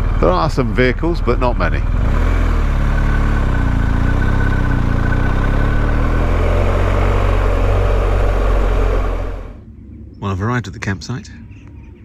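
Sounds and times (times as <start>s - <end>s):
motorcycle engine at low revs: 0.0s - 9.6s
thin high whine: 3.1s - 9.6s.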